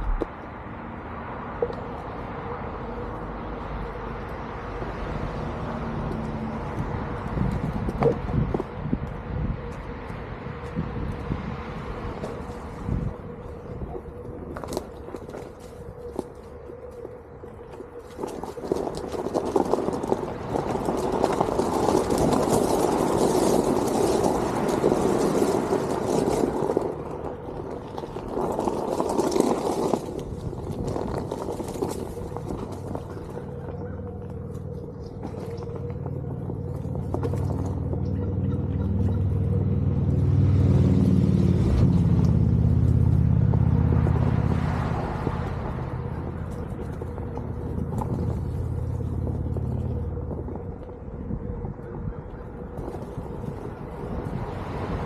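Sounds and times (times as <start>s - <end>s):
low motor hum: 1.5s - 55.0s
tyre rumbling over ground: 17.6s - 55.0s.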